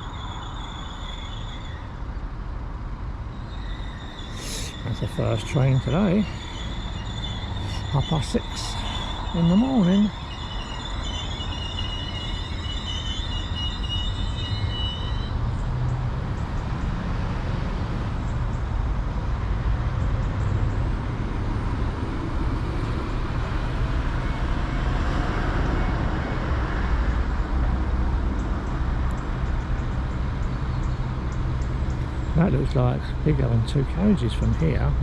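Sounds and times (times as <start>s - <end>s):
high squealing brakes: 0.0s - 16.9s, 23.0s - 35.0s
low diesel engine rumble: 2.6s - 14.7s, 27.3s - 35.0s.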